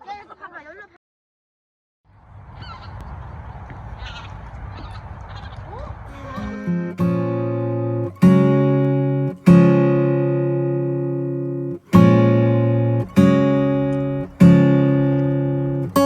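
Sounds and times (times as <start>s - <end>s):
acoustic guitar chords strummed: 6.1s - 16.0s.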